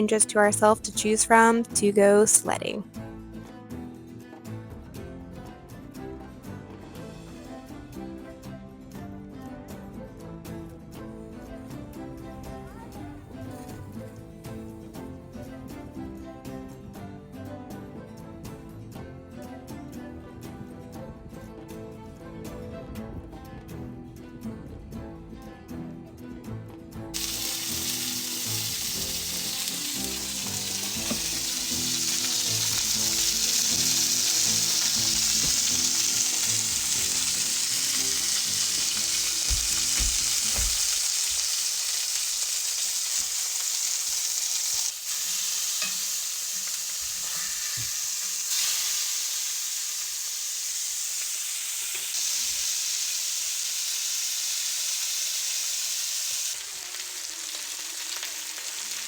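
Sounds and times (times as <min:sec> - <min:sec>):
background music: 0:00.0 - 0:49.4
burgers sizzling in a pan: 0:27.2 - 0:59.0.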